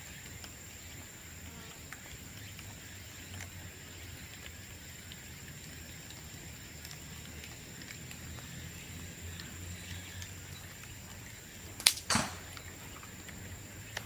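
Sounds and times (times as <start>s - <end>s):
faint crackling ticks: 1.7s - 14.0s
bamboo cracking open: 11.8s - 12.2s.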